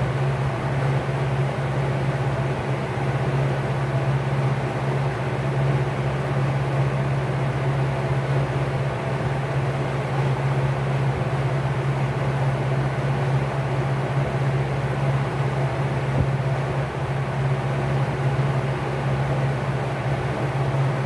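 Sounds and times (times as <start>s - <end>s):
fan motor humming: 14.4s - 21.0s.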